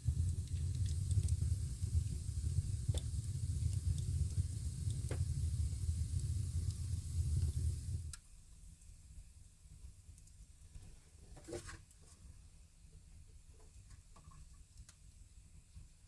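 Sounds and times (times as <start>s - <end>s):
fire crackles: 0.0s - 8.2s
fire hissing and rumbling: 0.0s - 8.2s.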